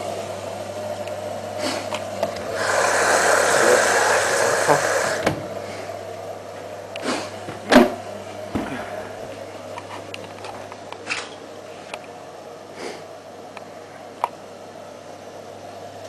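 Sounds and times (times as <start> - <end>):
washing machine humming: 0.0 - 16.0
rushing noise: 2.5 - 5.2.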